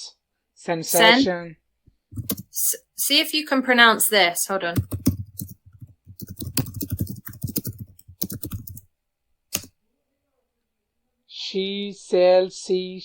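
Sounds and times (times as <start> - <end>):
computer keyboard typing: 2.2 - 2.5, 4.8 - 8.8.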